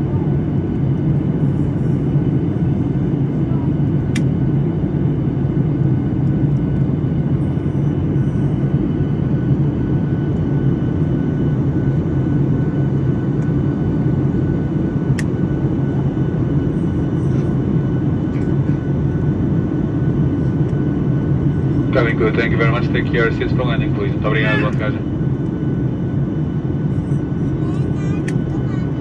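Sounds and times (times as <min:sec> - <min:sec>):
airliner cabin rumble: 0:00.0 - 0:29.0
faint steady whine: 0:06.3 - 0:29.0.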